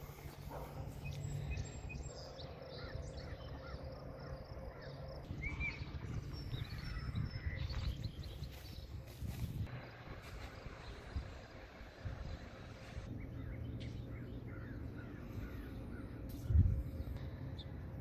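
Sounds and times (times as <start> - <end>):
steady low rumble: 0.0 - 18.0
bird chirps: 0.4 - 9.0.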